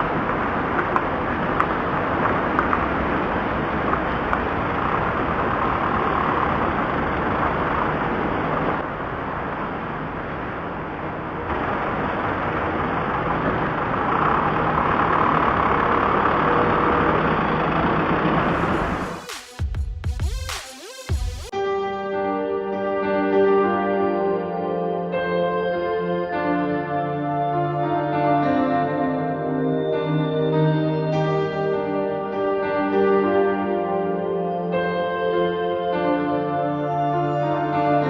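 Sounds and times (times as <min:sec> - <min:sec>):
car engine and road noise: 0:00.0 - 0:19.4.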